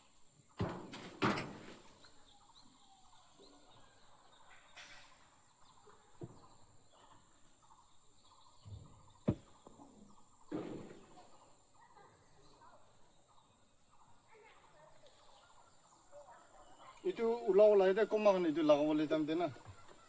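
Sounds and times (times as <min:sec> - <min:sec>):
dull knocks: 0:00.6 - 0:02.0, 0:08.7 - 0:09.7
rustling: 0:00.6 - 0:02.2
bird chirps: 0:02.0 - 0:20.0.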